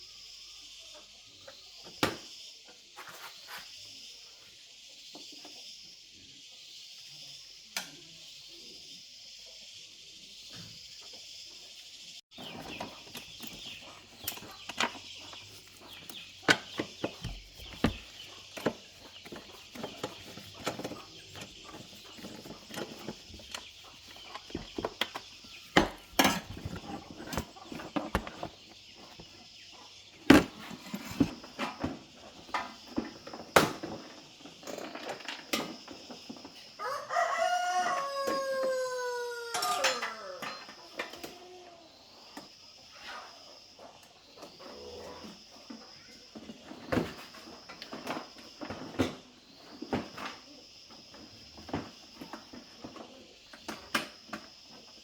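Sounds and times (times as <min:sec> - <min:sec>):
falling animal call: 0:36.8 - 0:40.6.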